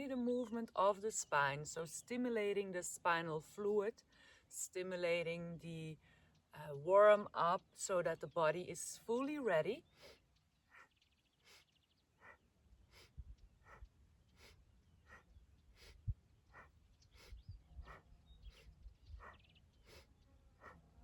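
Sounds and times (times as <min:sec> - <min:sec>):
faint rhythmic breathing: 0:03.9 - 0:04.7, 0:06.0 - 0:06.6, 0:09.8 - 0:21.0.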